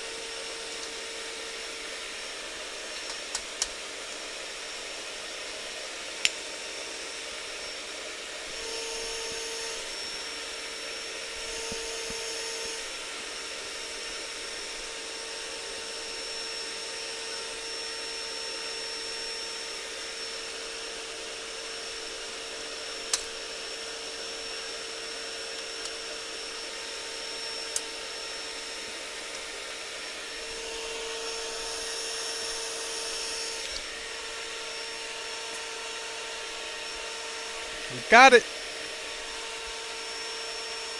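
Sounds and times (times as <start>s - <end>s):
small electric motor whining: 7.0s - 37.9s.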